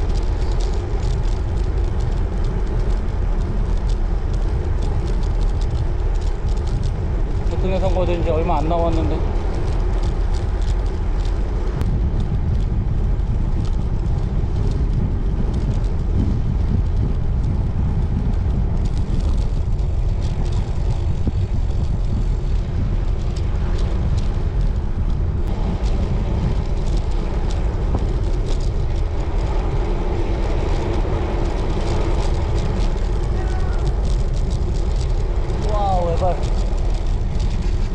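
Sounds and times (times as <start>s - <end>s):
wind buffeting microphone: 0.0s - 37.9s.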